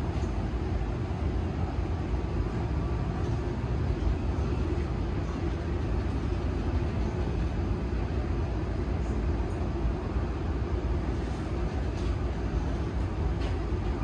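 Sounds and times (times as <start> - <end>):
electric train rumbling on rails: 0.0 - 14.0.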